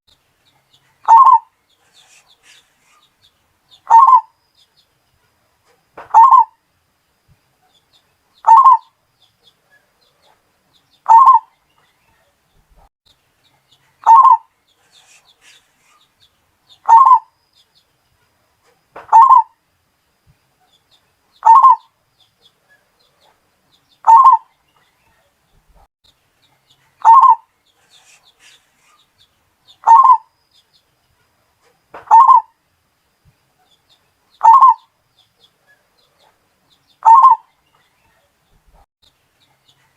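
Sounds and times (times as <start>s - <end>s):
dove cooing: 1.0s - 2.6s, 3.9s - 4.3s, 6.1s - 6.5s, 8.5s - 8.9s, 11.1s - 11.5s, 14.0s - 15.2s, 16.8s - 17.3s, 19.1s - 19.5s, 21.4s - 21.9s, 24.0s - 24.5s, 27.0s - 27.4s, 29.8s - 30.3s, 32.1s - 32.5s, 34.4s - 34.8s, 37.0s - 37.4s.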